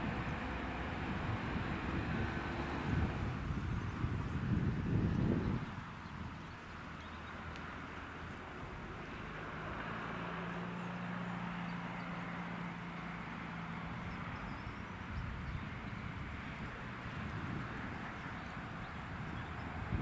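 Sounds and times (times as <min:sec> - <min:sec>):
train engine humming: 0:00.0 - 0:05.0.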